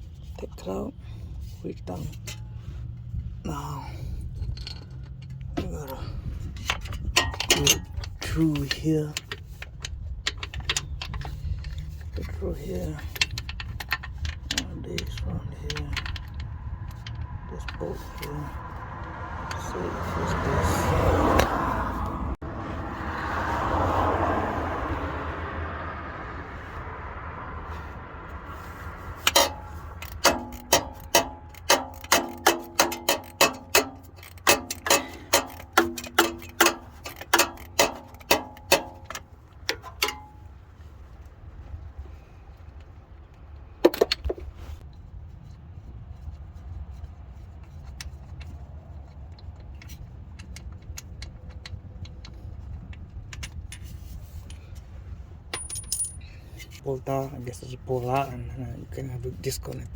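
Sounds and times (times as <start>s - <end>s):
ratchet wrench clicking: 28.6s - 40.3s.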